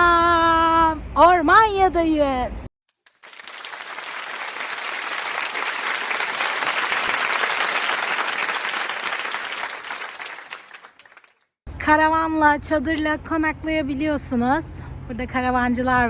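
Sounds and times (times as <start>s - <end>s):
crowd applauding: 3.1s - 11.4s.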